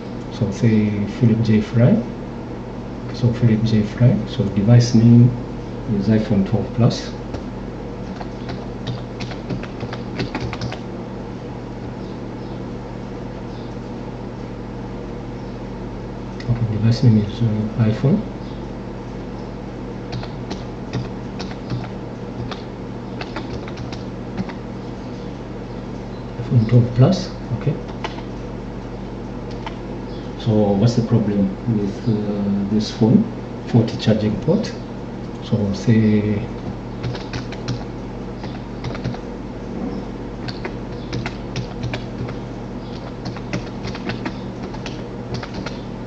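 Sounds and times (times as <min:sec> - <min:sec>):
steady low hum: 0:00.0 - 0:46.0
keyboard typing clicks: 0:08.1 - 0:10.8, 0:20.1 - 0:24.6, 0:27.9 - 0:28.3, 0:29.5 - 0:29.8, 0:36.6 - 0:39.2, 0:40.4 - 0:45.8.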